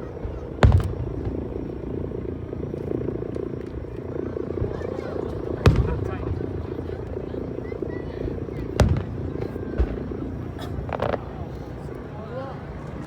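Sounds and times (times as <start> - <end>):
fireworks bursting and echoing: 0.0 - 2.2, 5.5 - 7.4, 8.1 - 11.8
sharp loud firework bang: 0.6 - 1.4, 8.8 - 10.0.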